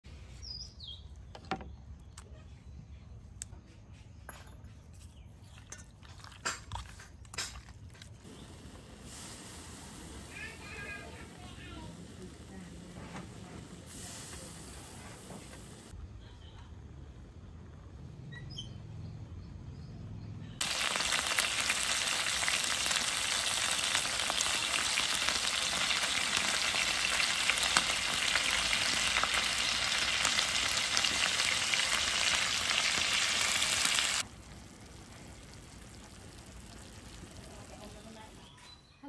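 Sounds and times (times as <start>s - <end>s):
meat and vegetables sizzling in a pan: 8.2s - 12.6s, 20.6s - 38.4s.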